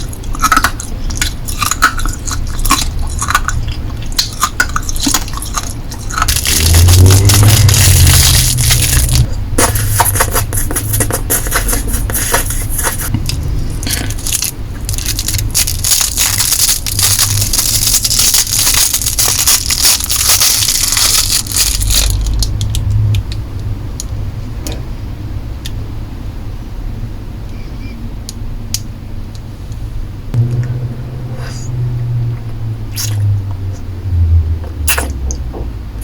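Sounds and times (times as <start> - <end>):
lollipop eating sounds: 0.0 - 23.4, 32.5 - 33.9, 34.8 - 35.4
plastic wrappers crinkling: 4.8 - 9.9, 10.8 - 23.0.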